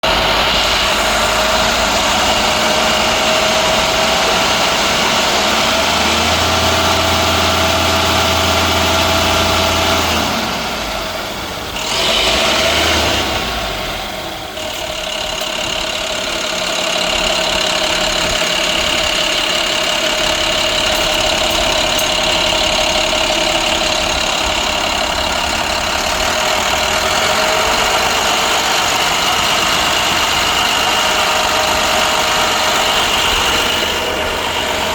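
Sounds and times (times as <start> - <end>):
diesel truck engine idling: 0.0 - 34.9.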